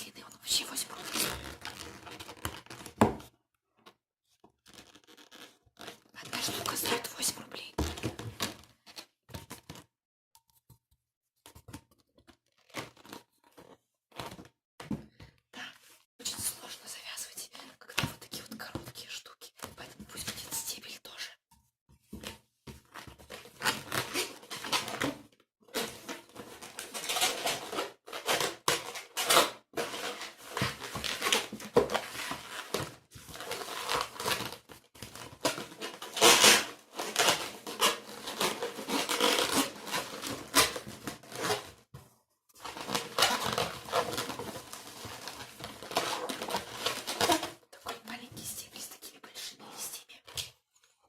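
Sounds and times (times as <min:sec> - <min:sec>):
rubber balloons squeaking: 0:04.6 - 0:06.1, 0:37.3 - 0:40.7, 0:42.8 - 0:44.3, 0:45.9 - 0:47.6.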